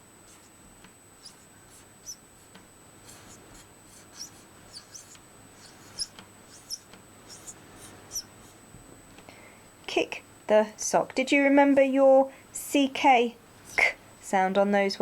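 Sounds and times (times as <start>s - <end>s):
marker squeaking on whiteboard: 1.2s - 8.6s.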